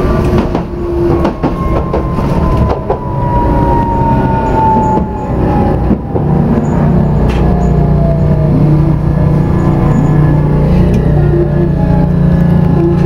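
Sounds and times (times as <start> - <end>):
train rumble on rails: 0.0 - 13.0.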